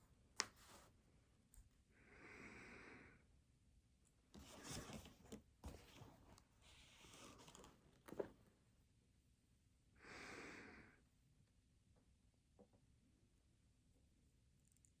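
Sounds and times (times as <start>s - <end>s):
person breathing: 2.0s - 3.2s, 10.0s - 11.1s
small rustles and clicks: 4.3s - 8.6s.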